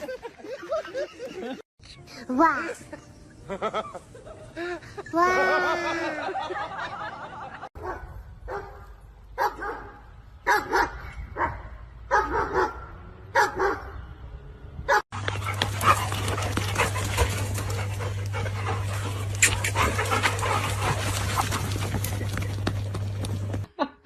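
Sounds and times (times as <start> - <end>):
dog barking: 7.8 - 8.8, 9.4 - 14.0.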